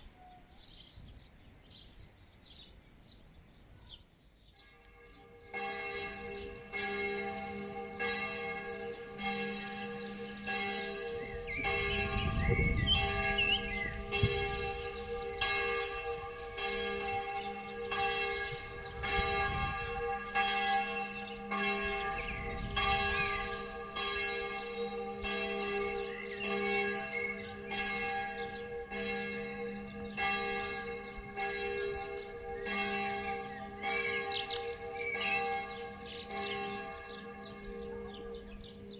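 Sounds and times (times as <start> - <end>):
birds chirping: 0.0 - 38.9
church bells ringing: 4.6 - 38.9
wind rumble on microphone: 11.1 - 15.6, 18.3 - 20.4, 21.1 - 23.7.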